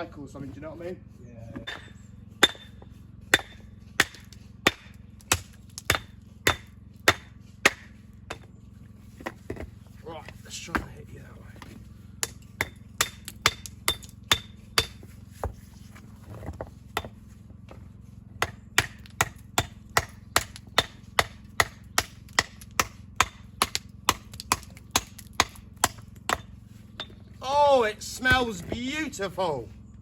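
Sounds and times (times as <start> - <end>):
hammer striking stone: 1.6 - 8.5, 11.6 - 15.5, 17.0 - 17.2, 18.4 - 27.2.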